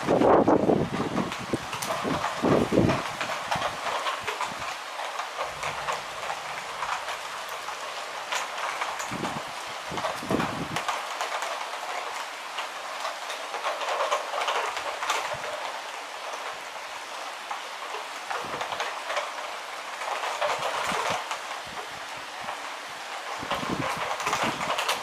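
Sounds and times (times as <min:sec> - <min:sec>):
heavy rain falling: 0:00.0 - 0:25.0.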